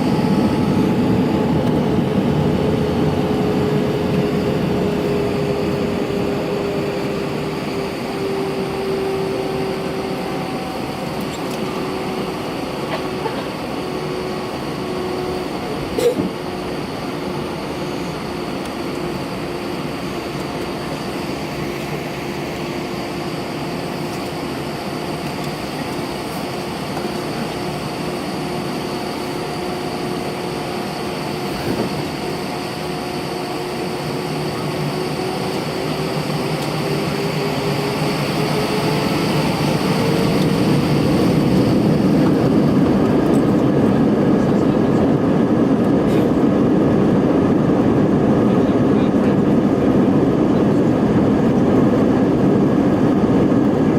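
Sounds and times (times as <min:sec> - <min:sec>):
jet engines humming and whining: 0:00.0 - 0:53.9.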